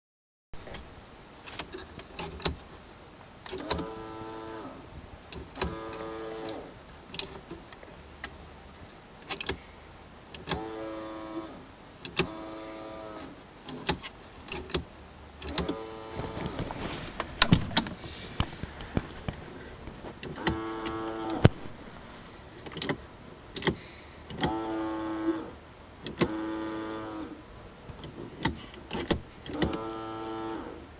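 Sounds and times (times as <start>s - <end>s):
servo motor whining: 15.4s - 18.6s, 20.2s - 22.0s, 23.6s - 27.4s, 28.4s - 30.8s.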